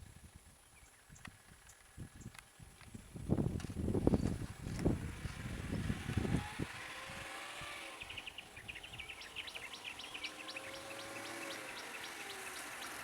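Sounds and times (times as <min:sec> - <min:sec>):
bird chirping rapidly: 0:07.8 - 0:13.0.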